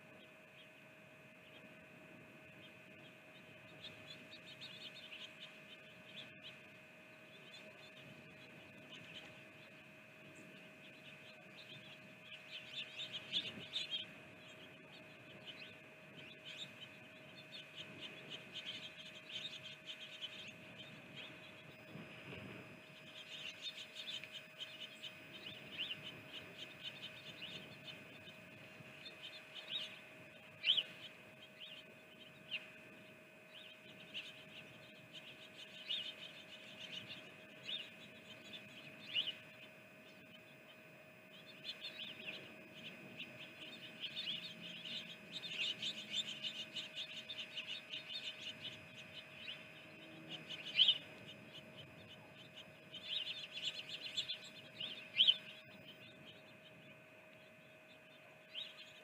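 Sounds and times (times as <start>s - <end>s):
faint electrical hum: 0.0s - 59.0s
small birds chirping: 0.0s - 59.0s.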